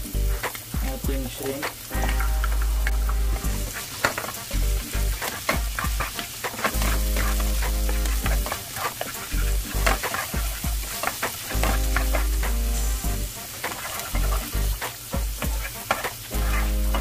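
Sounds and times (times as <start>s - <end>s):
sharp crackles of frying: 0.0s - 17.0s
shrimp sizzling in hot oil: 0.0s - 17.0s.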